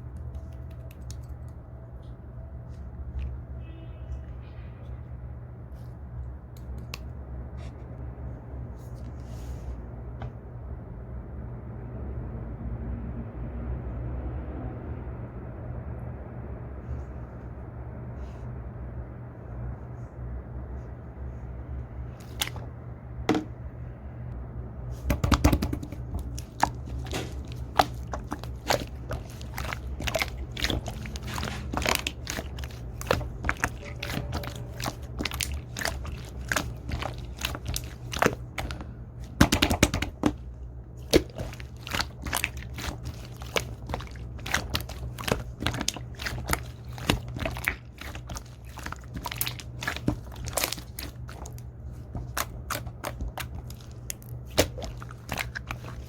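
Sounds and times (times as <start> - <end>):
steady low hum: 14.7 - 56.0
slime squishing with sticky pops: 22.1 - 22.7, 25.0 - 56.0.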